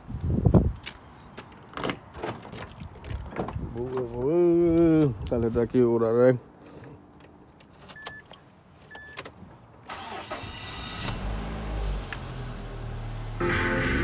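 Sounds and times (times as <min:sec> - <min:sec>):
car engine starting and idling: 0:09.8 - 0:14.0
music: 0:13.4 - 0:14.0.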